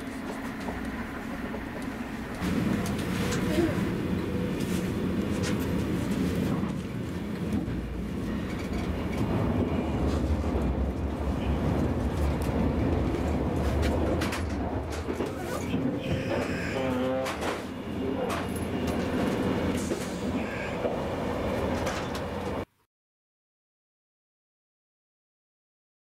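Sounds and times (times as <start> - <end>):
train interior low rumble: 0.0 - 22.7.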